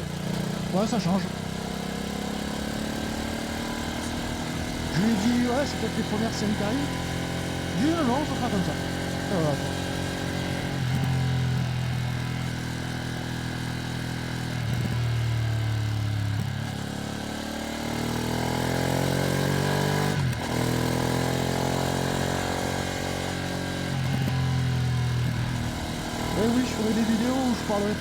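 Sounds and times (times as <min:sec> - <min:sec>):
gear change: 0:00.0 - 0:11.1, 0:23.9 - 0:28.0
motorcycle engine running: 0:00.0 - 0:28.0.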